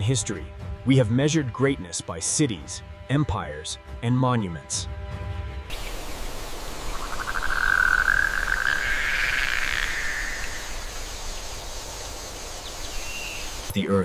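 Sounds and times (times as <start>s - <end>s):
rushing nature ambience: 5.7s - 13.9s
rapid pulsing animal trill: 5.8s - 13.7s.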